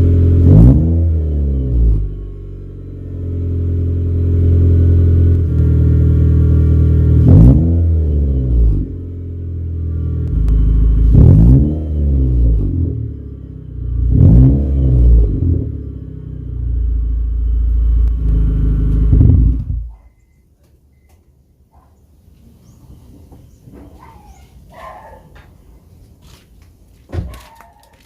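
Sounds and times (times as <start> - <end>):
car engine idling and revving: 0.0 - 20.3.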